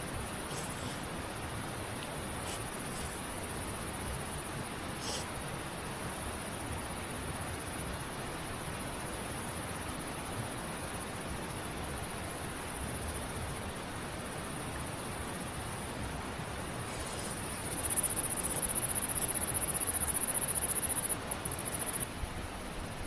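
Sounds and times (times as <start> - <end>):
steady background hiss: 0.0 - 23.0
pulsing insect trill: 17.1 - 22.1.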